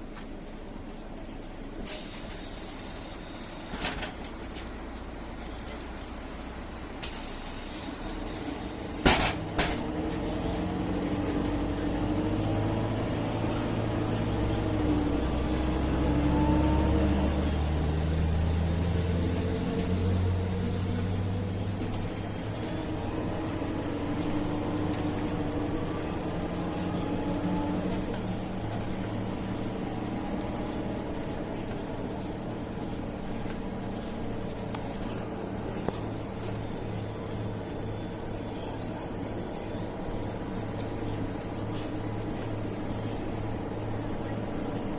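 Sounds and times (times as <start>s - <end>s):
bus diesel engine accelerating: 0.0s - 44.9s.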